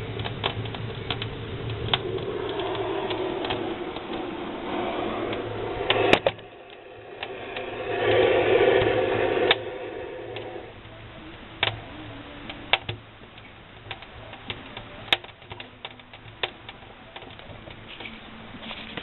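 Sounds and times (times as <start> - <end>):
wood fire crackling: 0.0 - 11.2
faint low hum: 0.0 - 18.9.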